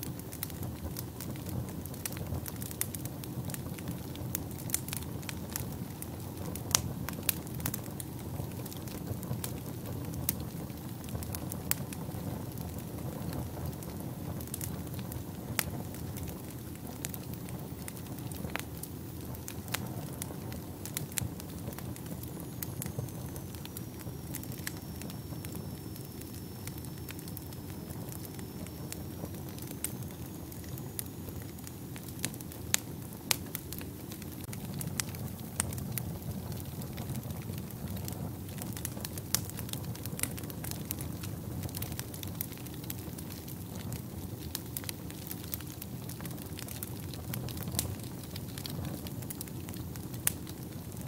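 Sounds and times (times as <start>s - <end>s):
wood fire crackling: 0.0s - 51.0s
faint high whistle: 22.2s - 31.7s.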